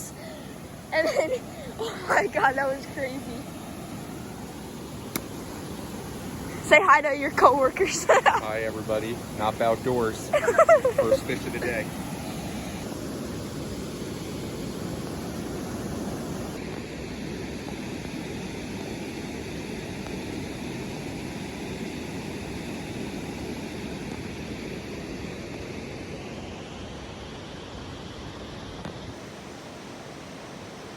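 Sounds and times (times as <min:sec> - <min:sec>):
creek water rushing: 0:00.0 - 0:16.7.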